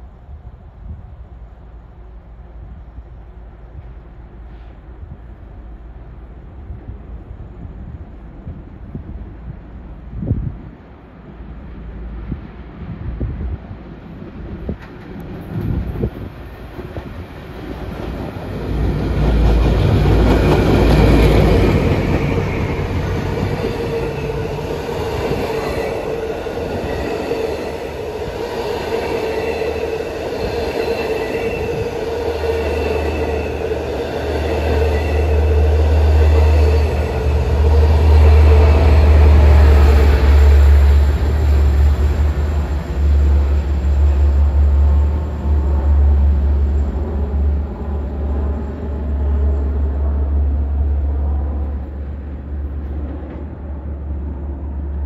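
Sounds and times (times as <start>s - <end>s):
rail clatter: 14.2s - 55.0s
diesel locomotive rumble: 14.4s - 55.0s.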